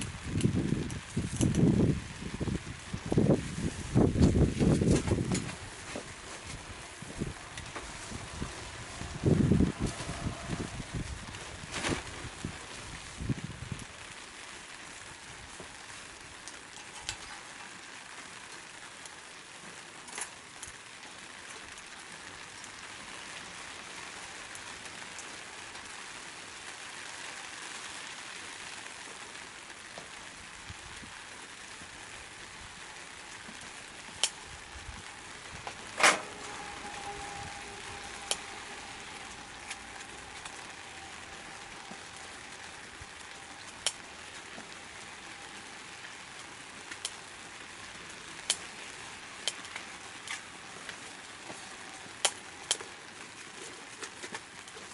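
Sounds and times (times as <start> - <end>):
fire crackling: 0.0 - 54.9
sharp pops of fire: 34.1 - 34.5, 51.6 - 52.9.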